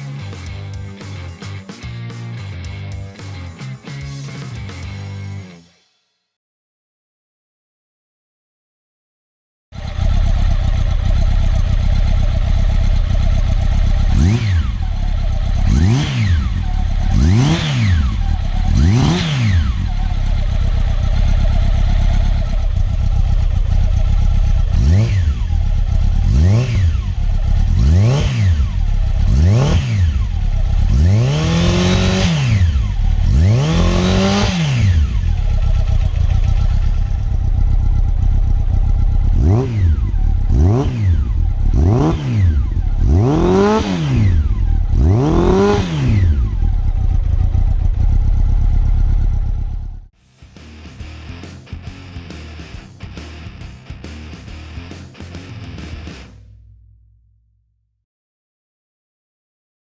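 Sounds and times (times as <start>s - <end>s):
motorcycle engine idling and revving: 9.8s - 57.4s.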